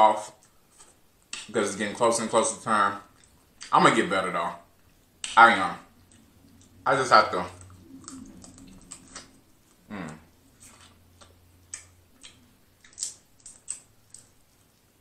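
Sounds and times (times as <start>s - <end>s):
lips smacking and chewing: 7.5s - 14.8s.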